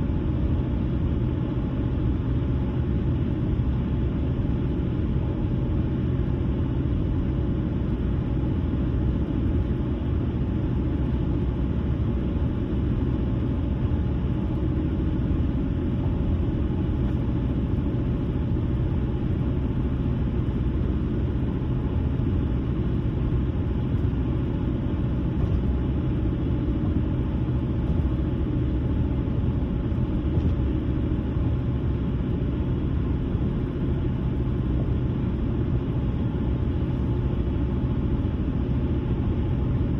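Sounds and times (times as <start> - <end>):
car driving rumble: 1.4 - 39.9.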